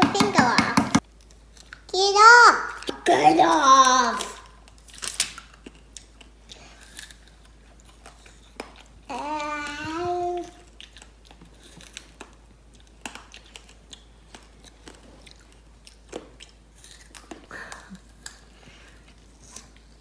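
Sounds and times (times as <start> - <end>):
child's drawn-out voice: 2.0 - 4.5, 9.1 - 10.6
crunchy candy chewing: 4.3 - 9.0, 10.4 - 20.0.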